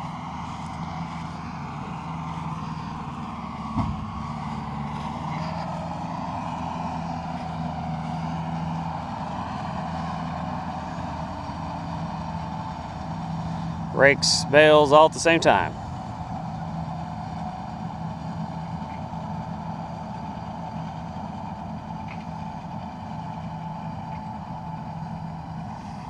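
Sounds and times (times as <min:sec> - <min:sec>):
vehicle engine running: 0:00.0 - 0:26.0
short thump: 0:03.7 - 0:04.1.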